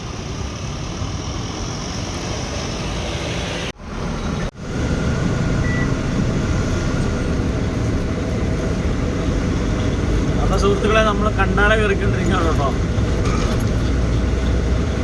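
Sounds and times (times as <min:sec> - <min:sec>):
truck engine and road rumble: 0:00.0 - 0:15.0
short high beep: 0:05.6 - 0:06.0.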